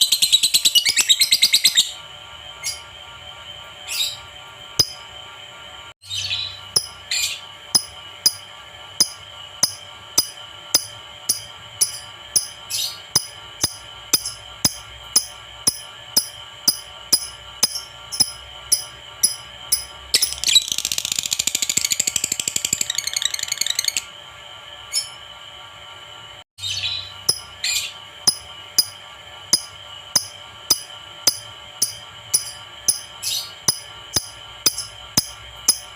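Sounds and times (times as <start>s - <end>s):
lovebird chirping and trilling: 0.0s - 2.0s, 6.0s - 8.4s, 17.6s - 24.1s.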